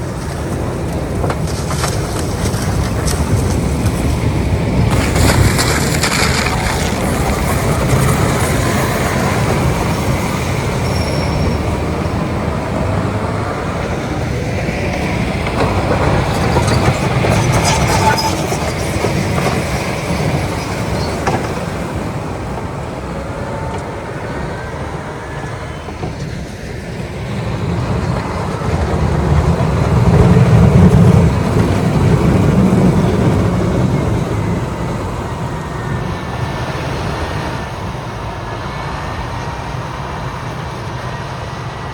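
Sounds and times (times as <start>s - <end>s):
steel blades scraping snow: 0.0s - 11.8s, 15.7s - 21.8s
heavy diesel engines under load: 0.0s - 41.9s.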